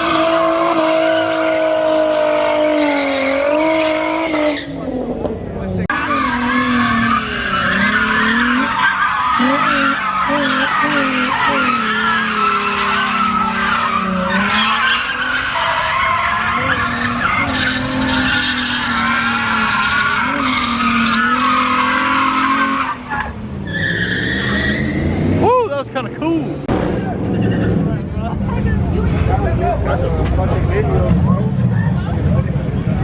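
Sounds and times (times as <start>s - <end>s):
tyres squealing: 5.9s - 25.0s.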